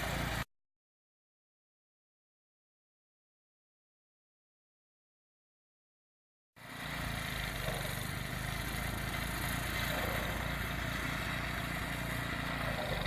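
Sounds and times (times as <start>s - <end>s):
engine running: 0.0s - 0.4s, 6.6s - 13.0s.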